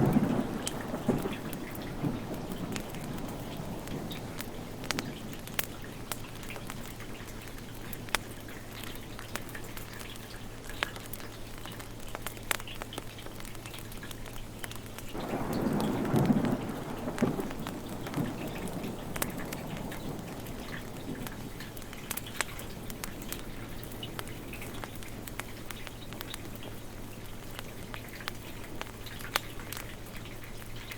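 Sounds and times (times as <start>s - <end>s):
thunder rumbling: 0.0s - 6.2s, 15.2s - 24.8s
steady rain falling: 0.0s - 30.9s.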